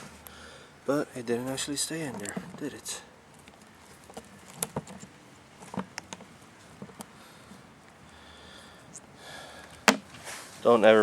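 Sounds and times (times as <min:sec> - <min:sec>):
sharp loud click: 0:09.9 - 0:10.1.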